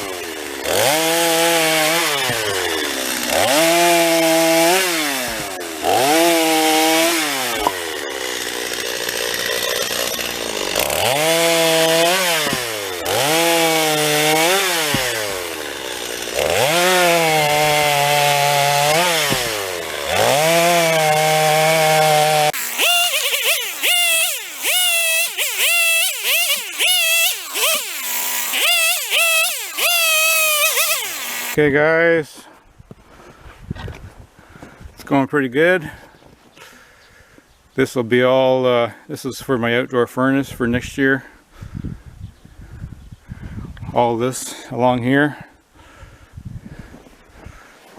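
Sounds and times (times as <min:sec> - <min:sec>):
chainsaw revving and idling: 0:00.0 - 0:31.6.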